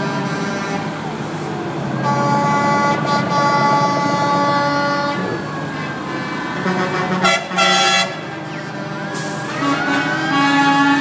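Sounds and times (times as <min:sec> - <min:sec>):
truck air horn blasts: 0:00.0 - 0:01.0, 0:02.0 - 0:05.5, 0:06.2 - 0:11.0
truck engines running: 0:00.0 - 0:11.0.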